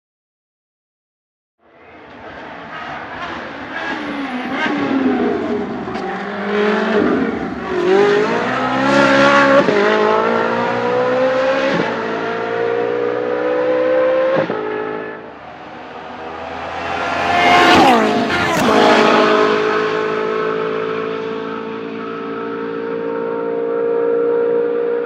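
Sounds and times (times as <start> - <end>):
engine upshifts: 1.8 - 25.0
race car engine revving: 2.0 - 25.0.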